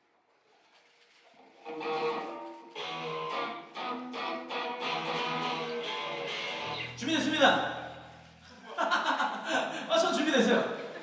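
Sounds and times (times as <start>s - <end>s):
guitar strumming chords: 1.7s - 7.0s.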